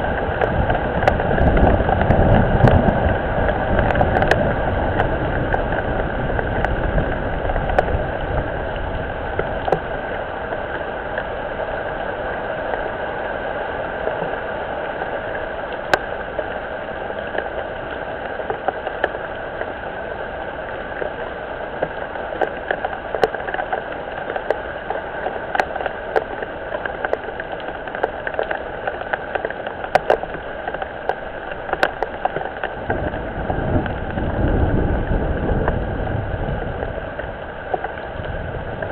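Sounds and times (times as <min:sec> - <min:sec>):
raindrops ticking near microphone: 0:00.0 - 0:38.9
steady rain falling: 0:00.0 - 0:38.9
low rumble: 0:32.7 - 0:38.9.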